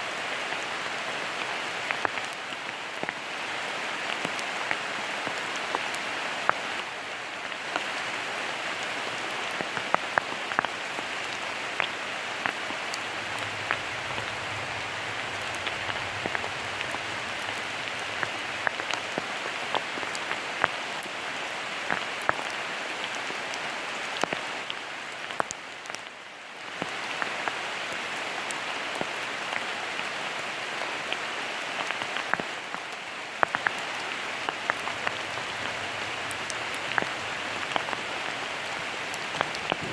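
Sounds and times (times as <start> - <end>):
steady rain hiss: 0.0 - 39.9
close raindrop impacts ticking: 9.5 - 20.8, 33.4 - 39.9.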